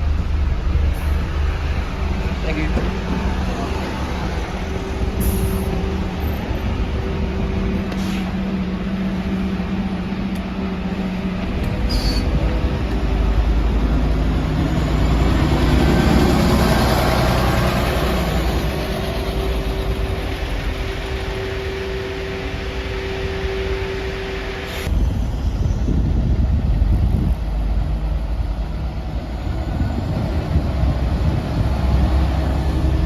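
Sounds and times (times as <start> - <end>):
bus engine drone: 0.0 - 33.0
road and rattle noise: 0.0 - 33.0.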